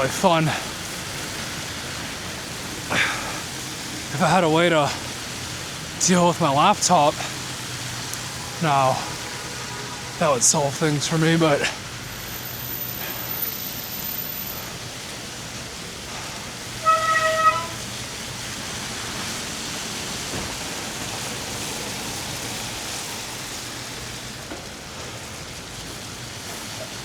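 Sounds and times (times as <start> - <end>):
tyres on slushy street: 0.0 - 27.0
short high horn beep: 16.8 - 17.8.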